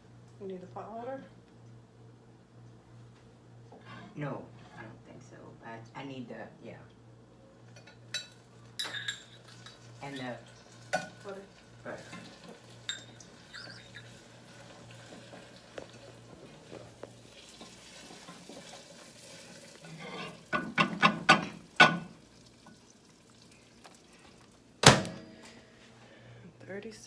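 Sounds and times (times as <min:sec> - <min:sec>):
spoon stirring in a bowl: 0:07.8 - 0:10.3, 0:12.0 - 0:18.8
spoon clacking against bowl: 0:12.9 - 0:14.0.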